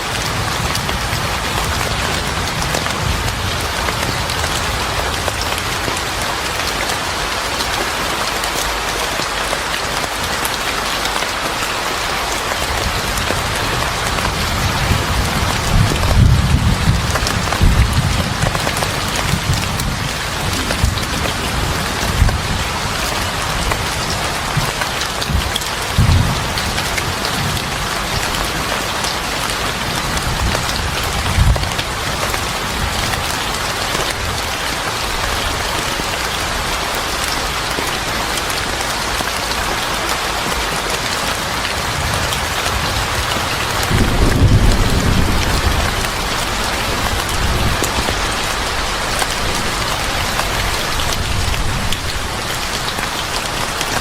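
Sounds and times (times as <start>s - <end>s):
heavy rain falling: 0.0s - 54.0s
low thunder rumbles: 12.7s - 28.8s, 41.8s - 52.4s.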